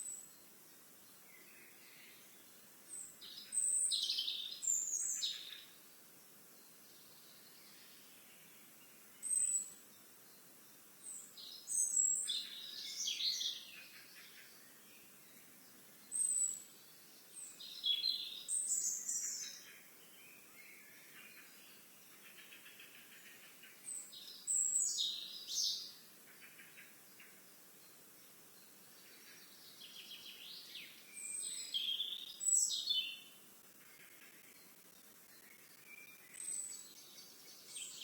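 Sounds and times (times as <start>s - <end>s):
songbird singing: 0.0s - 38.0s.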